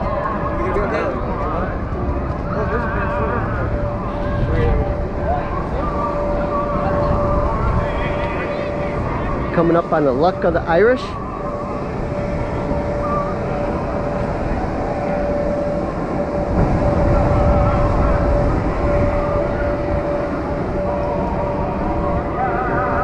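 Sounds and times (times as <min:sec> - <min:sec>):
loud mechanical rumble with hum: 0:00.0 - 0:23.0.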